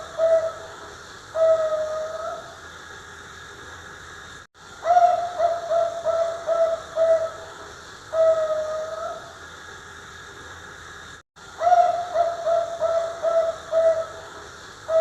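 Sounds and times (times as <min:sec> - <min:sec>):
dove cooing: 0:00.0 - 0:00.8, 0:01.4 - 0:02.5, 0:04.8 - 0:07.6, 0:08.2 - 0:09.2, 0:11.6 - 0:14.3.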